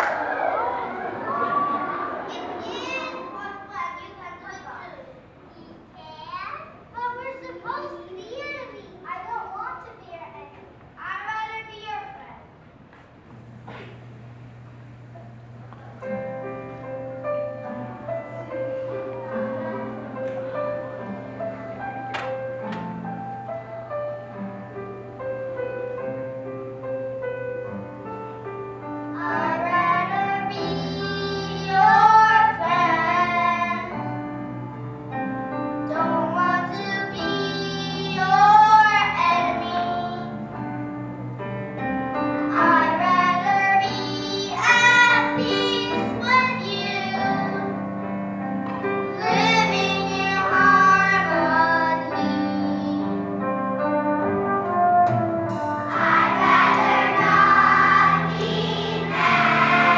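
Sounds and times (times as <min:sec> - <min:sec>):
children singing: 0:00.0 - 0:04.0, 0:29.2 - 0:34.3, 0:35.8 - 0:40.4, 0:42.5 - 0:47.8, 0:49.1 - 0:53.2, 0:55.8 - 0:59.9
instrumental accompaniment: 0:13.2 - 0:59.9.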